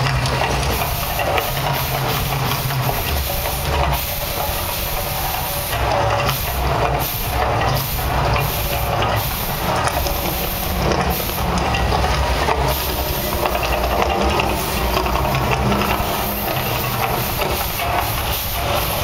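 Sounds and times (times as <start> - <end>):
gas flames and water jets hissing: 0.0 - 19.0
low rumble: 5.9 - 18.9.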